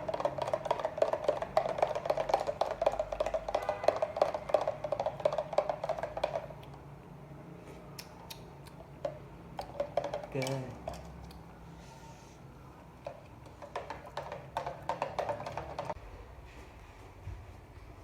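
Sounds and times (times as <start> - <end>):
utensil stirring in a bowl: 0.0 - 6.7, 8.9 - 11.9, 13.0 - 16.0.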